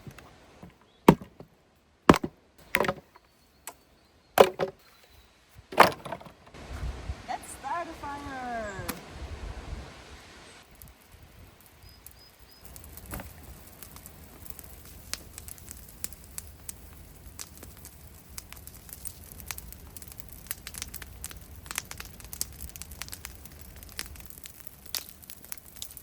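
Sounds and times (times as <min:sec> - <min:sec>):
low rumble of fire: 0:06.5 - 0:07.4, 0:08.0 - 0:26.0
fire crackling and popping: 0:10.6 - 0:26.0.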